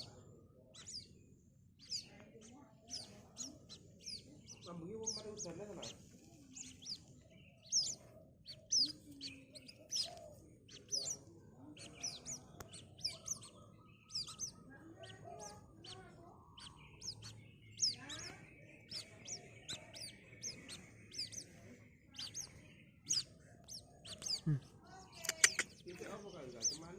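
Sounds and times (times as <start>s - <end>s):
bird chick peeping: 0.0s - 26.9s.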